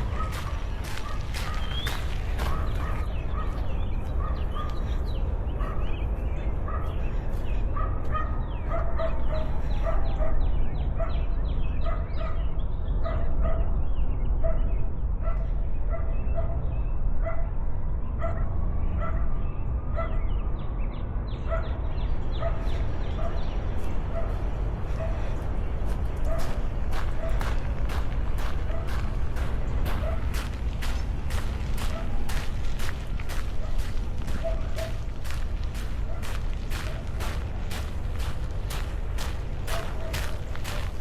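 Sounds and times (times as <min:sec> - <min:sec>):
wind buffeting microphone: 0:00.0 - 0:10.0, 0:21.8 - 0:41.0.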